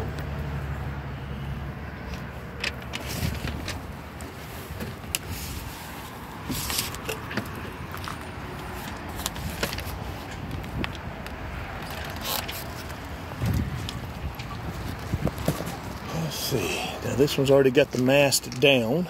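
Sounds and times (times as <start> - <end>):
handling knocks and clicks: 2.1 - 5.3, 6.4 - 16.1.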